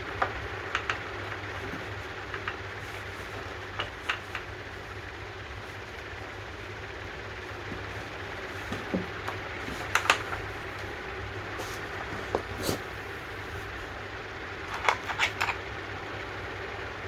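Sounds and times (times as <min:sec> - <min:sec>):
steady low hum: 0:00.0 - 0:17.0
sharp clicks and knocks: 0:00.2 - 0:02.6, 0:03.7 - 0:04.5, 0:08.7 - 0:10.9.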